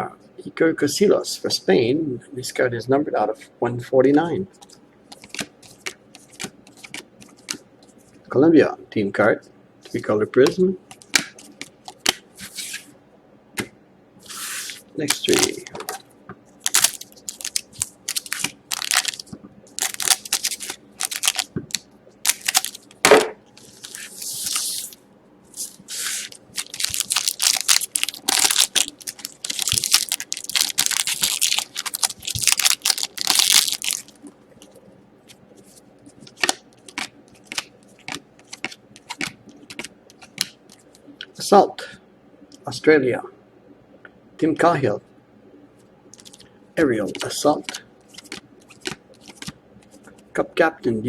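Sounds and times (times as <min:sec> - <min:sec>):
cards clicking and tapping: 0:05.1 - 0:07.6, 0:36.3 - 0:40.6, 0:47.1 - 0:49.6
card wrappers tearing and crinkling: 0:14.3 - 0:15.6, 0:16.6 - 0:23.0, 0:23.6 - 0:34.3, 0:36.3 - 0:40.5, 0:48.1 - 0:49.5.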